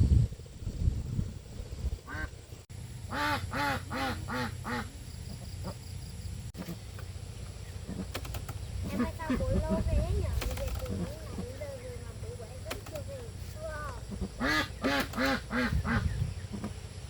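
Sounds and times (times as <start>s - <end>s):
animal calling: 8.8s - 16.9s.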